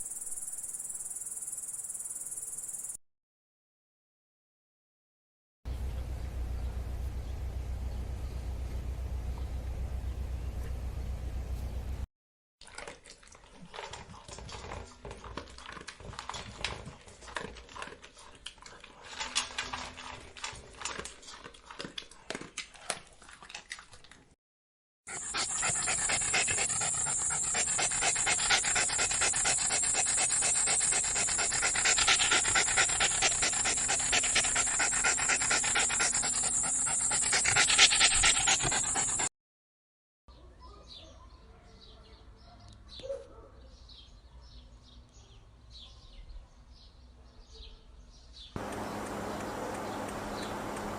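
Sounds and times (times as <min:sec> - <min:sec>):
dog panting and snuffling: 0:25.1 - 0:39.3, 0:48.6 - 0:50.9.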